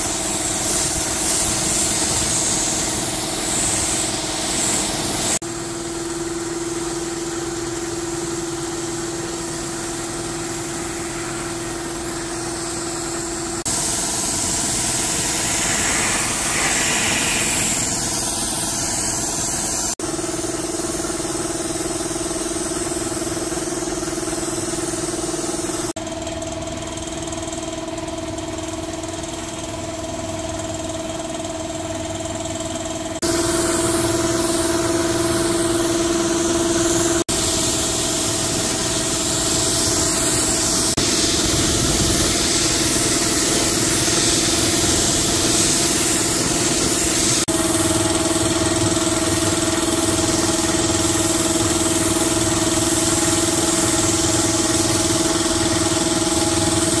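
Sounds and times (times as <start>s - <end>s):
engine running with hum and hiss: 0.0s - 57.0s.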